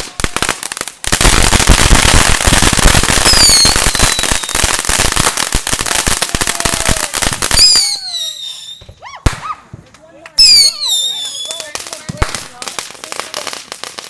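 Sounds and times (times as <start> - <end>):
firecrackers popping: 0.0 - 14.0
high falling whistle: 10.4 - 11.6.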